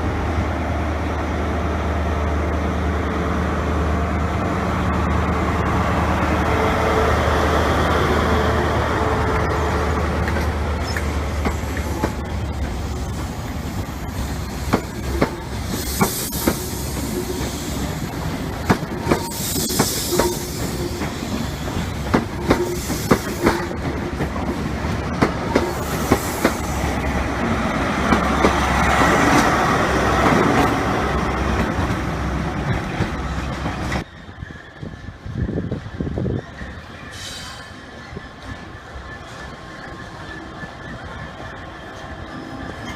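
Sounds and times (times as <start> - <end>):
train engine drone: 0.0 - 42.9
wheel squeal: 34.0 - 42.9.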